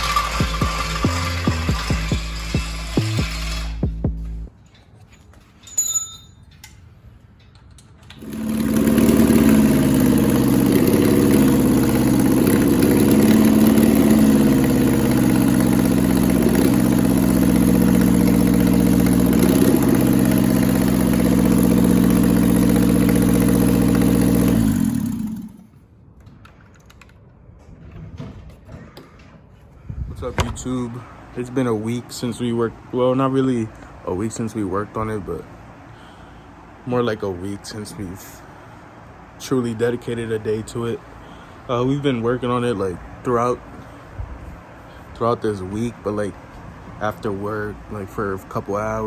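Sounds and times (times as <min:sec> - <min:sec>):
car engine idling: 0:00.0 - 0:04.5, 0:08.2 - 0:25.6.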